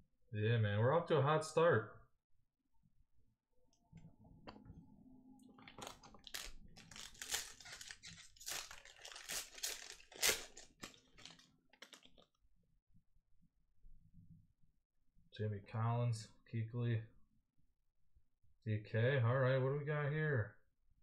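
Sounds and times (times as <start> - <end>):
plastic wrapper crinkling and tearing: 5.6 - 12.4.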